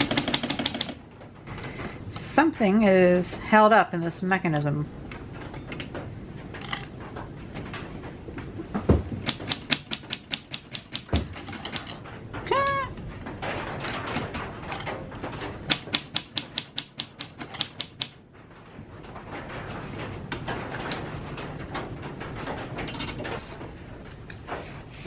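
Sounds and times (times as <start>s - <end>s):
typewriter keys clacking: 0.0s - 1.0s, 9.2s - 12.0s, 15.7s - 18.2s.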